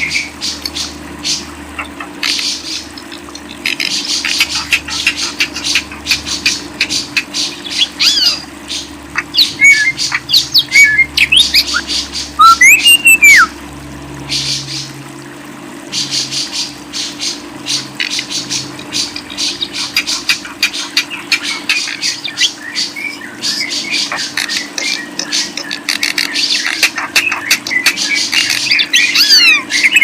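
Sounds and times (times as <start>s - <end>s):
cage birds chattering: 0.0s - 13.5s, 14.2s - 15.0s, 15.9s - 30.0s
steady low hum: 0.0s - 30.0s
whistled bird notes: 9.4s - 13.5s.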